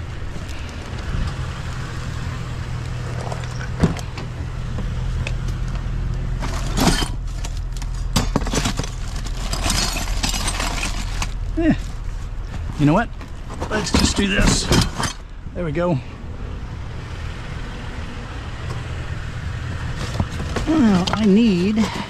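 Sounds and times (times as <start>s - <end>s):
metal parts clinking in a box: 6.4s - 11.4s, 13.7s - 15.2s.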